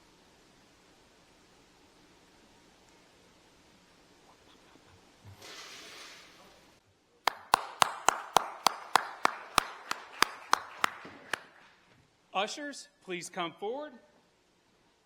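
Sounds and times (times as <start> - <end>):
rhythmic hand clapping: 7.3 - 11.7.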